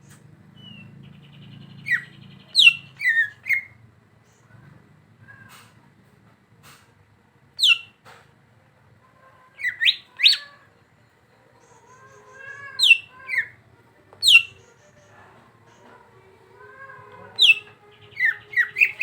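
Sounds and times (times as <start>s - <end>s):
bird calling sharp notes: 17.3s - 19.0s.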